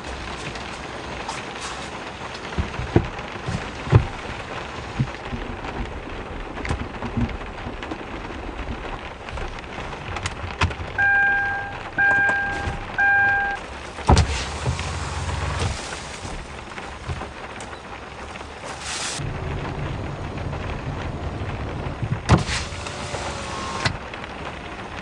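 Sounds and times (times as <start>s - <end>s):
heavy rain: 0.0s - 25.0s
heavy drops thudding: 6.6s - 17.6s
short electronic beeps: 11.0s - 13.6s.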